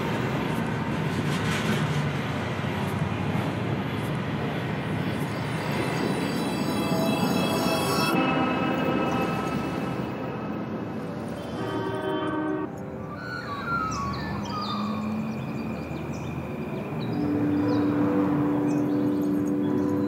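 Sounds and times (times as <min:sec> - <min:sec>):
sustained low drone: 0:06.0 - 0:12.0, 0:12.6 - 0:20.0.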